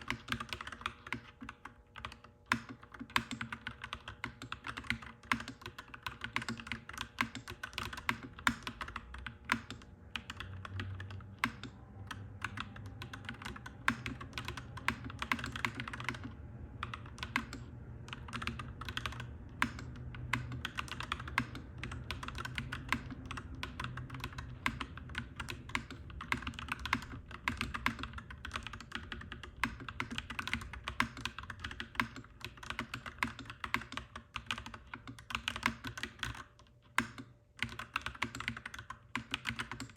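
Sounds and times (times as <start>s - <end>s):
mechanical keyboard typing: 0.0s - 39.9s
low steady rumble: 10.0s - 31.8s.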